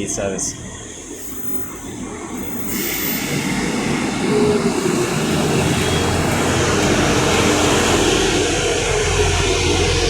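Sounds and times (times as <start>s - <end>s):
train engine and wheel noise: 0.0s - 10.0s
faint squeal: 1.1s - 6.3s.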